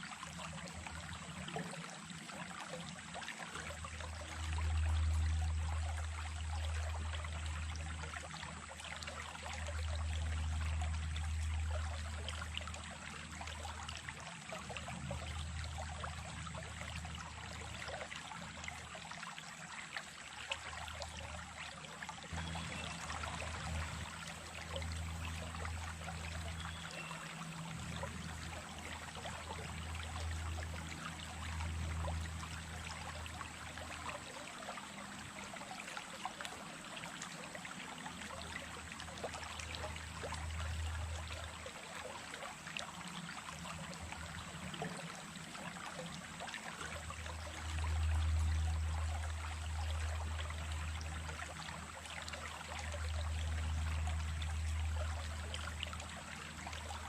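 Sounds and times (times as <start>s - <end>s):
stream trickling and splashing: 0.0s - 57.0s
low rumble: 22.4s - 33.9s.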